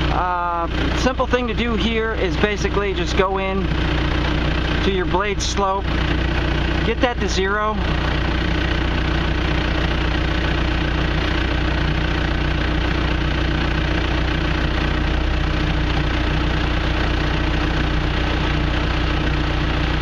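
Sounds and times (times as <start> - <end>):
bulldozer diesel engine idling: 0.0 - 20.0.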